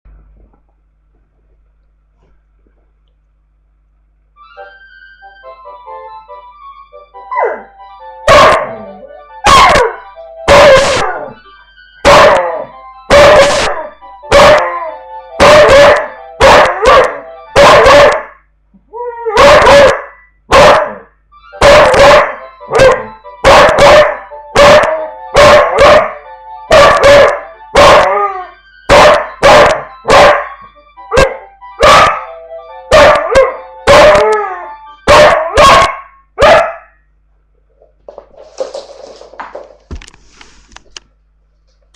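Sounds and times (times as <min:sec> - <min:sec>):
dog howling and barking: 0:08.3 - 0:08.8, 0:09.5 - 0:11.4, 0:12.0 - 0:32.3, 0:32.9 - 0:36.9.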